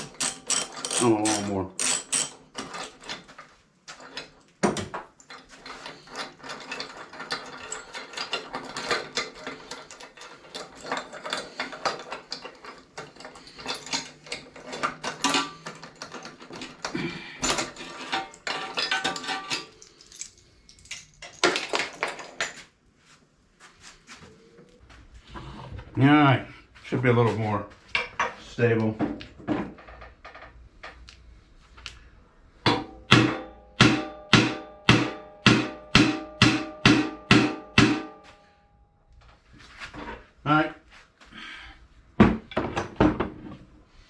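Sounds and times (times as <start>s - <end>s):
ratchet wrench clicking: 0.0s - 2.4s
metal tools knocking: 0.0s - 3.3s.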